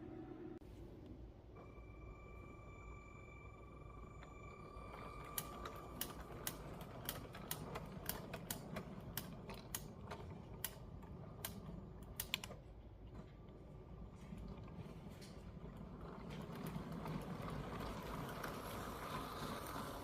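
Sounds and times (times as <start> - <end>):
toy train wheels clicking: 5.3 - 9.9
low rolling rumble: 12.9 - 20.0.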